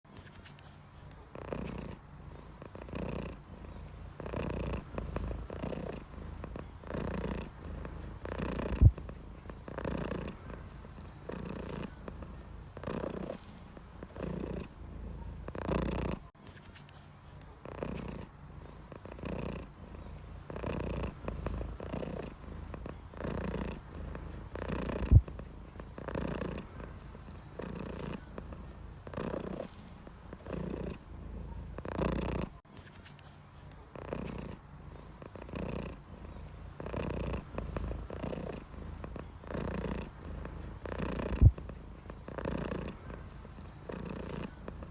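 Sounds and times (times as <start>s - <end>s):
cat purring: 0.2s - 32.6s, 33.2s - 44.9s.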